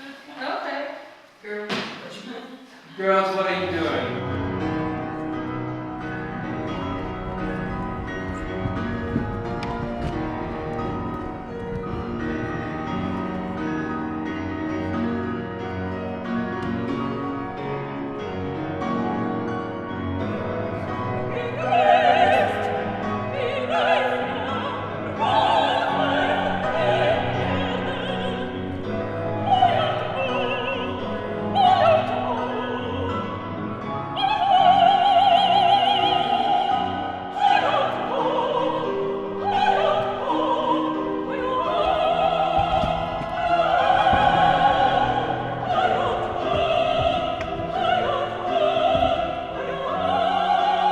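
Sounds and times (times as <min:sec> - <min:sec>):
piano accompaniment: 0:03.2 - 0:50.9
operatic soprano singing: 0:20.2 - 0:50.9.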